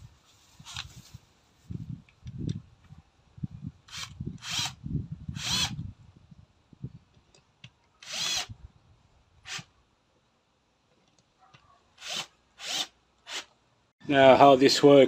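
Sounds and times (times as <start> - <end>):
wind rumble on microphone: 0.0 - 7.3
power drill spinning: 3.9 - 5.8, 8.0 - 8.5, 12.0 - 13.5.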